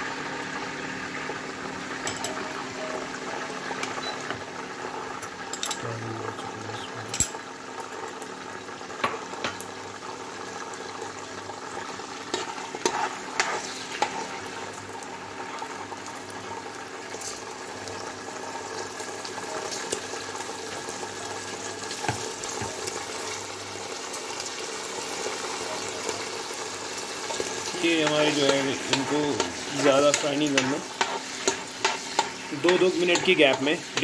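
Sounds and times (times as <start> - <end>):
peas sizzling in hot oil: 0.0 - 34.0.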